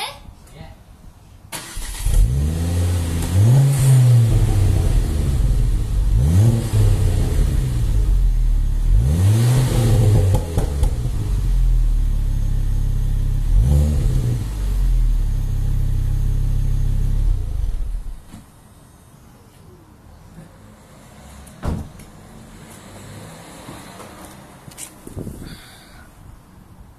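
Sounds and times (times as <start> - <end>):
car engine revving: 1.6 - 18.3.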